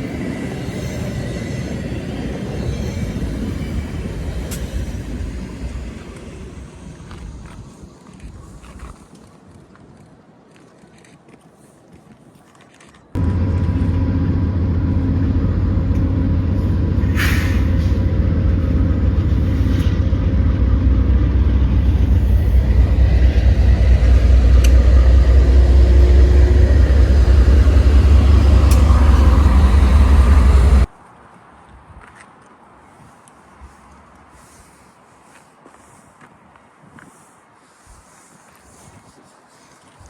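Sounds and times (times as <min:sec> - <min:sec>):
diesel train engine drone: 0:00.0 - 0:08.2, 0:13.2 - 0:30.9
train clicks and squeals: 0:00.0 - 0:09.3, 0:12.4 - 0:30.9.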